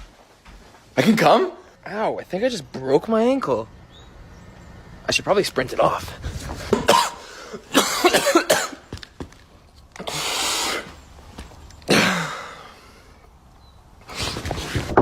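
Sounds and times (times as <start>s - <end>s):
person coughing: 6.7s - 8.9s, 11.9s - 12.8s.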